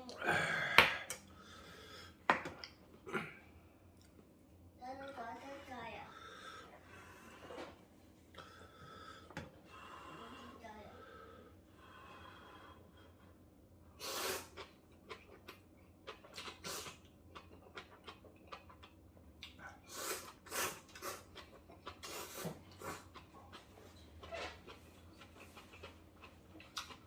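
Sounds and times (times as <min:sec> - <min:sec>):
slurping and chewing noodles: 0:14.0 - 0:27.0.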